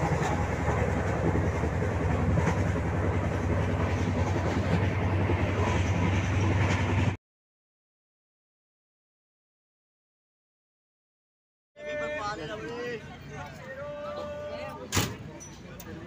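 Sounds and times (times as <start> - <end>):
train rumbling on rails: 0.0 - 7.2.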